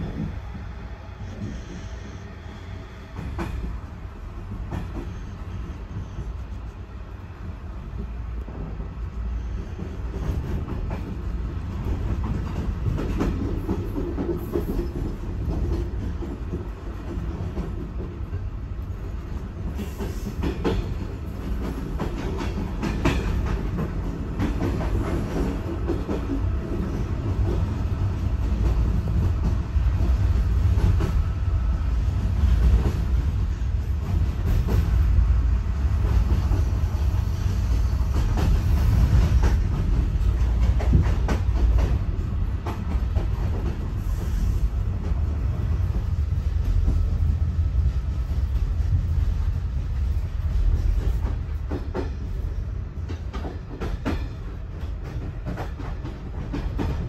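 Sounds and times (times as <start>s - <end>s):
train coach rumble from inside: 0.0s - 57.0s
wheels clacking on track: 7.8s - 31.5s, 32.1s - 57.0s.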